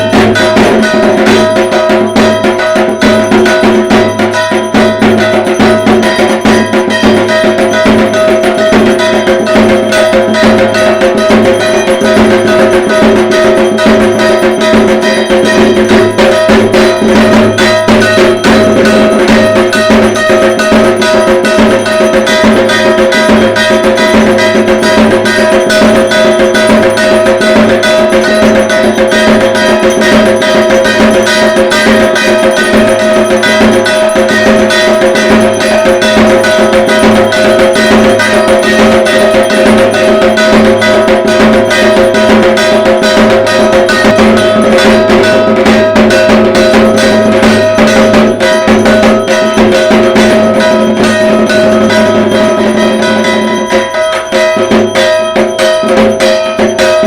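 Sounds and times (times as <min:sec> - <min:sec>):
drums beaten in fast rhythm: 0:00.0 - 0:57.0
metallic ringing tones: 0:00.0 - 0:57.0.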